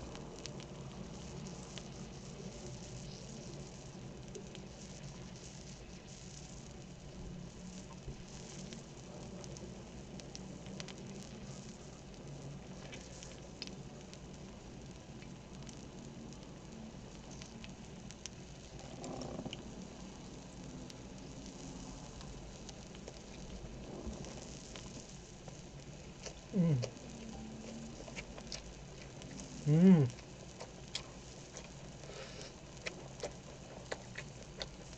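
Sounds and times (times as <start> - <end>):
pork sizzling in a pan: 0.0 - 32.8
fat crackling and popping: 0.0 - 34.9.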